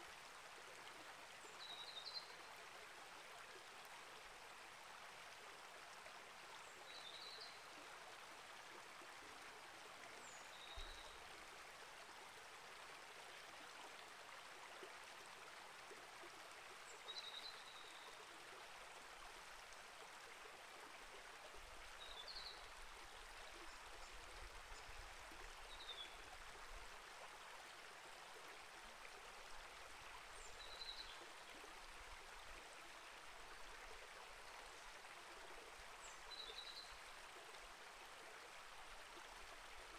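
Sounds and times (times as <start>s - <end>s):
creek flowing: 0.0s - 39.9s.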